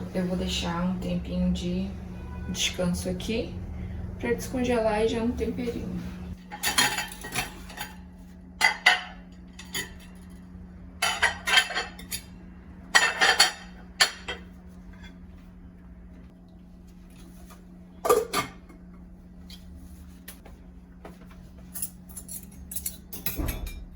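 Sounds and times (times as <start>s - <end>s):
steady low hum: 0.0s - 23.9s
dishes and cutlery clinking: 6.5s - 8.0s, 8.6s - 10.4s, 11.0s - 12.3s, 12.9s - 15.2s, 21.7s - 23.9s.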